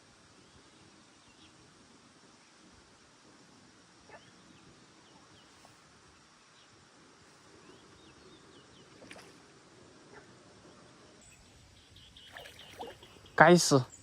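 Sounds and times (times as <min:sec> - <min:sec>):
faint high chirps: 0:11.2 - 0:14.0.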